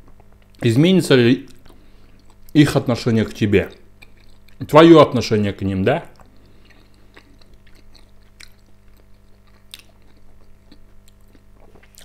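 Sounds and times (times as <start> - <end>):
faint chewing: 0.0 - 0.7, 1.4 - 2.6, 3.6 - 4.7, 6.0 - 12.0
low steady hum: 0.0 - 12.0.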